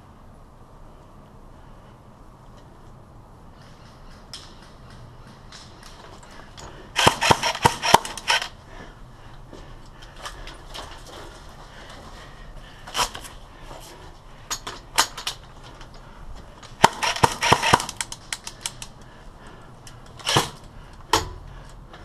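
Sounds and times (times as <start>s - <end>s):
airsoft guns firing: 6.9s - 8.6s, 16.7s - 18.9s, 20.2s - 20.6s.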